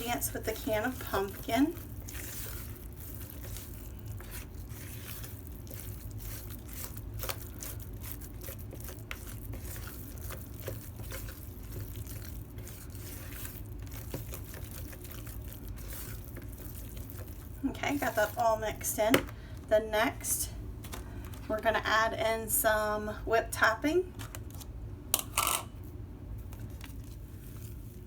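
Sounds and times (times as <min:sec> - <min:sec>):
spoon stirring thick mixture in bowl: 0:00.0 - 0:19.7
steady low hum: 0:00.0 - 0:28.0.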